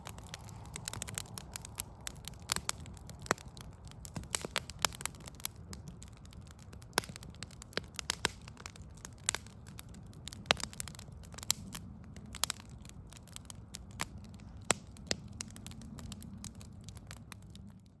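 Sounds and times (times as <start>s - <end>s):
low rumble: 0.0s - 5.6s
log fire crackling: 0.0s - 18.0s.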